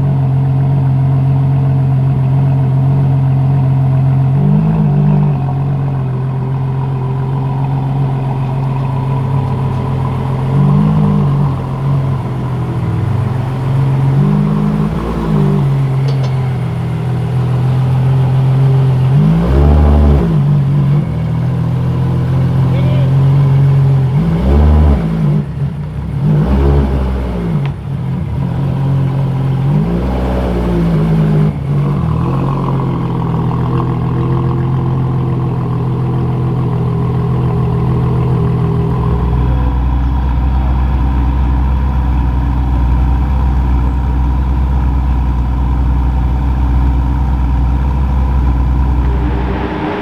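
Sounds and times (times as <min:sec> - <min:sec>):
car engine revving and idling: 0:00.0 - 0:50.0
deep low rumble: 0:04.0 - 0:24.0, 0:47.4 - 0:50.0.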